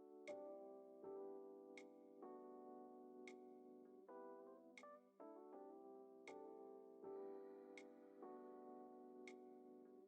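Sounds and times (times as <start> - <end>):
electric piano chords: 0.0 - 10.0.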